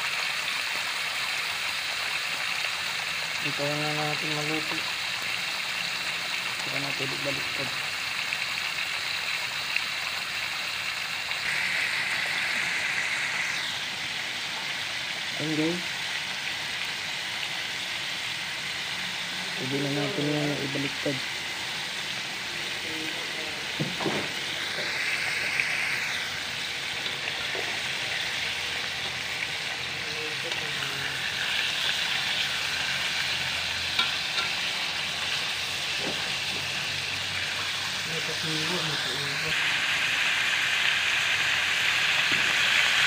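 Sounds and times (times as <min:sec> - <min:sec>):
meat sizzling in hot oil: 0:00.0 - 0:43.0
oil popping: 0:21.7 - 0:43.0.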